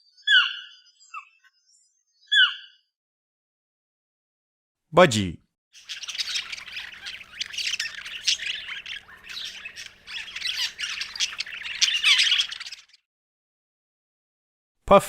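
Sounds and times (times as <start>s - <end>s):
budgerigar chattering: 5.8s - 13.0s.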